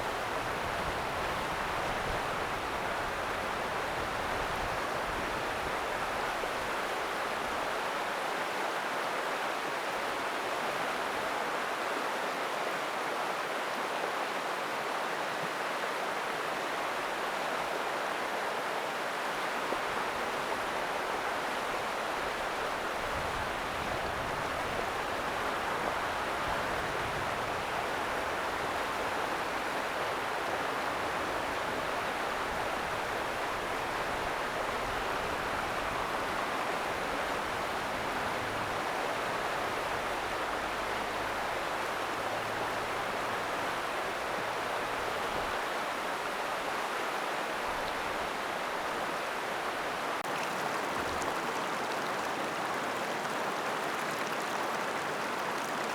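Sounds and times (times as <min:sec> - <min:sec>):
river water rushing: 0:48.3 - 0:55.9.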